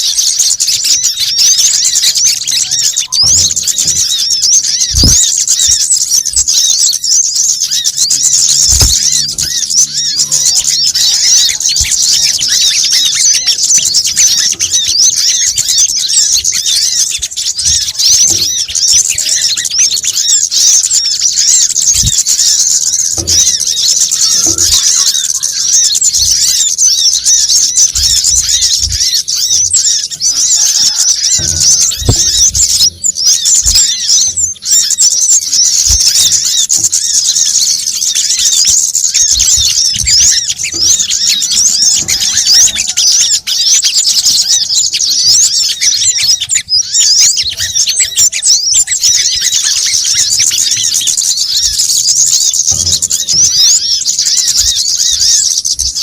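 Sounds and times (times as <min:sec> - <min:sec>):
songbirds chirping and squeaking: 0:00.0 - 0:56.0
low thumps: 0:08.5 - 0:10.9, 0:31.2 - 0:34.3.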